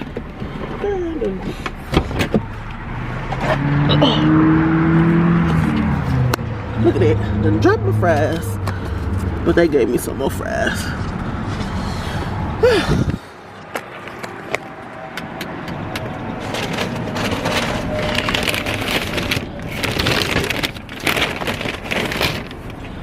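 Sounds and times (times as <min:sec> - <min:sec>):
low car cabin rumble: 0:00.0 - 0:04.2, 0:05.0 - 0:23.0
paper packaging crinkling: 0:16.4 - 0:23.0.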